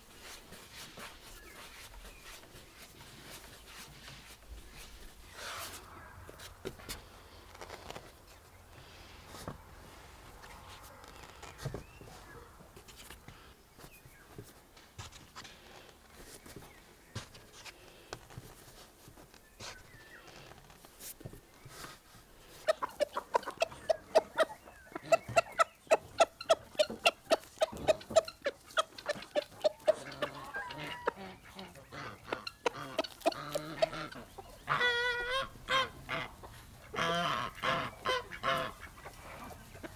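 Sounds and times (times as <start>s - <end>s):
chicken clucking: 21.7s - 39.9s.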